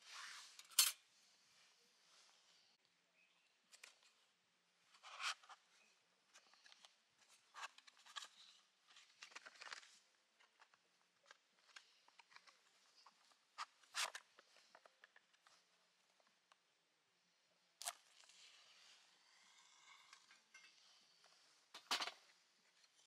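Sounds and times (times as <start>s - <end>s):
clicks and scrapes of handling: 4.9s - 5.6s, 6.3s - 15.7s.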